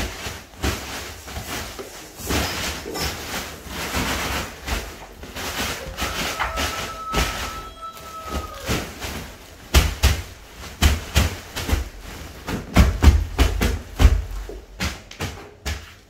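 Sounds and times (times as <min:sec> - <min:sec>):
plastic bag rustling and crackling: 0:00.0 - 0:16.0
dull thumps of bag pressed down: 0:09.7 - 0:16.0.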